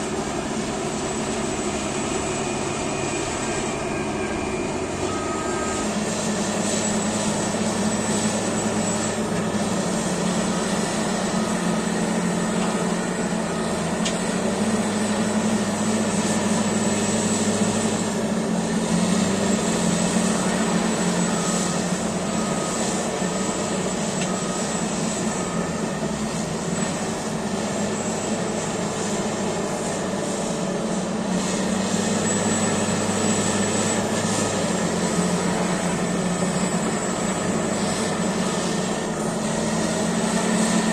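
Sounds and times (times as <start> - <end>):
thin high whine: 0.0 - 14.2
bulldozer diesel engine running: 0.0 - 40.9.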